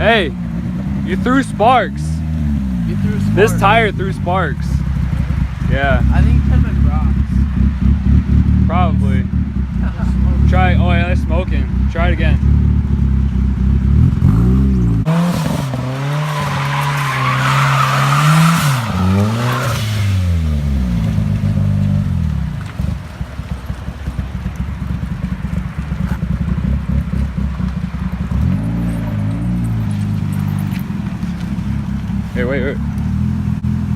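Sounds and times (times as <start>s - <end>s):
car engine revving: 0.0s - 33.9s
tyres squealing: 15.2s - 20.4s.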